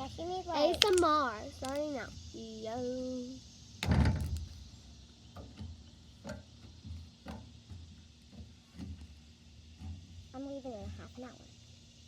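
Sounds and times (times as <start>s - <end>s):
slime squelching: 0.6s - 2.0s
slime soft pops and clicks: 0.7s - 1.8s.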